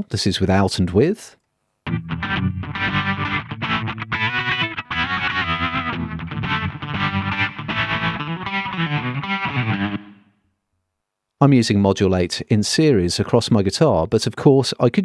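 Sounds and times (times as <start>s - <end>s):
electric guitar with tremolo and reverb: 1.9s - 10.4s.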